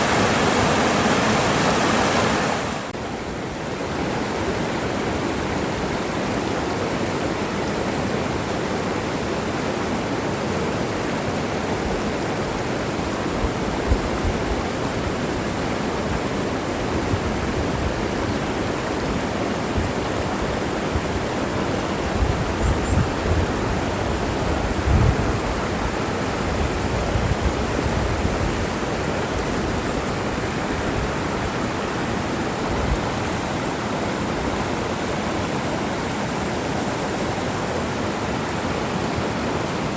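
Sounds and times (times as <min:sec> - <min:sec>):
mountain stream rushing: 0:00.0 - 0:39.9
wind rumble on microphone: 0:11.7 - 0:36.0.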